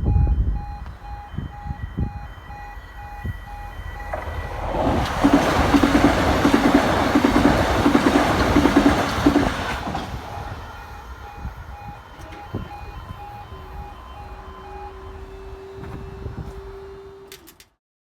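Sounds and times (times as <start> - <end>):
crossing alarm pulsing: 0.0 - 17.4
train wheels clattering on rails: 2.3 - 16.7.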